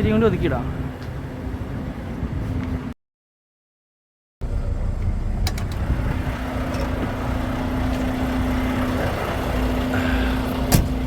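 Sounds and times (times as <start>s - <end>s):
truck diesel engine running: 4.4s - 11.0s.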